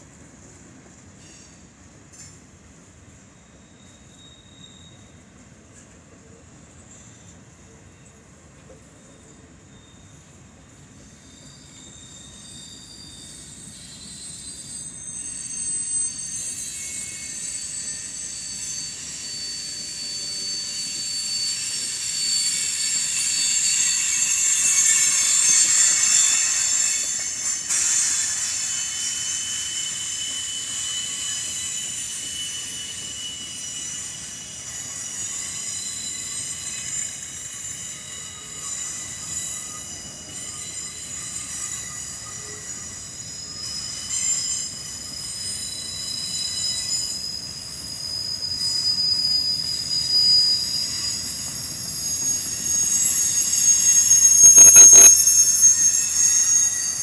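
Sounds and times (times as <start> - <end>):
steel wheels squealing: 0.0 - 57.0
train rumble: 4.9 - 57.0.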